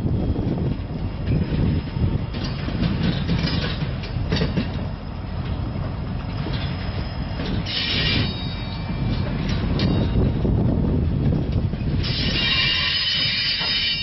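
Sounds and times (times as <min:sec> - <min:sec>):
freight train wheels rumbling: 0:00.0 - 0:14.0
high-pitched wheel squeals: 0:07.6 - 0:09.3, 0:12.0 - 0:14.0.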